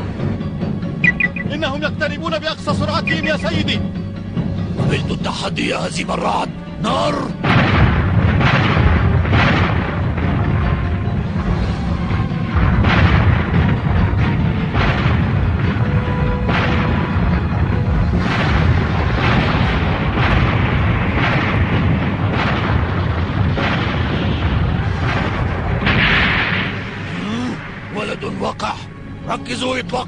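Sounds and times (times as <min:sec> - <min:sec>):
battle music: 0:00.0 - 0:30.0
heavy continuous rumble: 0:07.3 - 0:28.3
starship cannons firing: 0:07.4 - 0:11.8, 0:12.5 - 0:27.8
explosions: 0:07.4 - 0:28.3.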